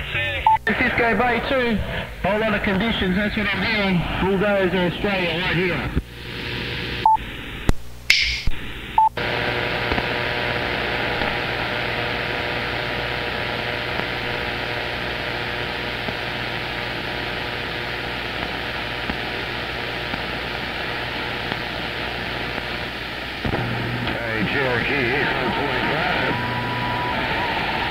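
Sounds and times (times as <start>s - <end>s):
radio static hiss: 0.0s - 27.9s
radio clicks: 9.7s - 25.9s.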